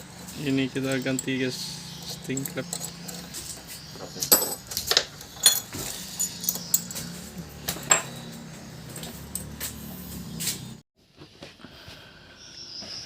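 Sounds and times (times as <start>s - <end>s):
metal parts clinking: 0.7s - 9.6s.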